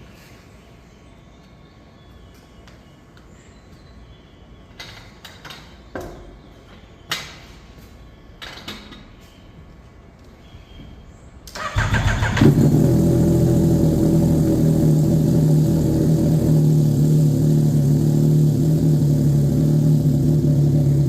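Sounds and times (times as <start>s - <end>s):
motorcycle engine idling: 11.6s - 21.0s.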